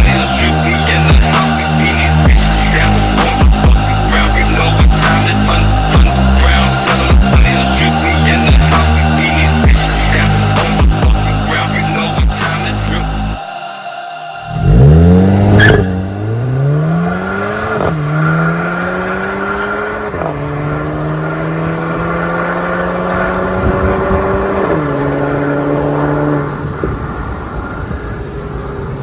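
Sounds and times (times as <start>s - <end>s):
car engine accelerating hard: 14.5s - 29.0s.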